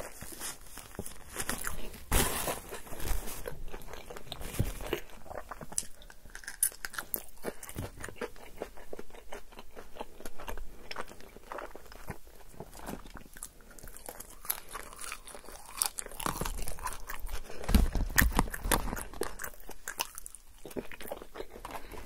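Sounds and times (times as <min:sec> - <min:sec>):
paper napkin rustling: 0:00.0 - 0:05.0
chewing crunchy food: 0:00.0 - 0:22.0.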